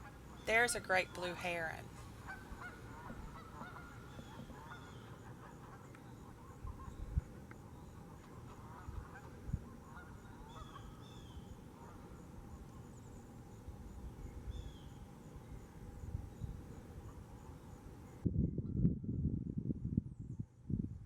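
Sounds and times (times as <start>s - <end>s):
geese honking in the distance: 0.0s - 13.2s.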